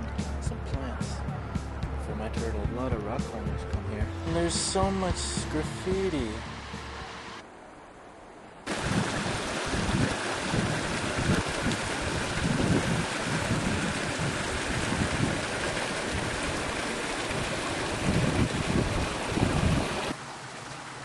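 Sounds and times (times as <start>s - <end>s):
rushing water: 2.6s - 21.0s
wind buffeting microphone: 8.7s - 20.2s.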